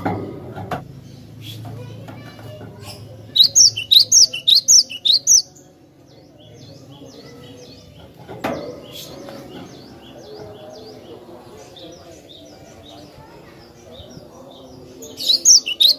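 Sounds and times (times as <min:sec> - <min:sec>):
bird chirps: 0:02.8 - 0:05.7, 0:13.8 - 0:15.9.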